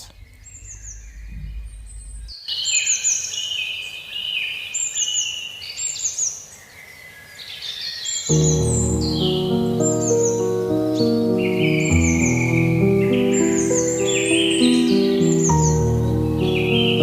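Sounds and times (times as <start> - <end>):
low hum: 0.0 - 2.4
birds chirping: 0.0 - 3.8, 8.2 - 17.0
music: 8.3 - 17.0.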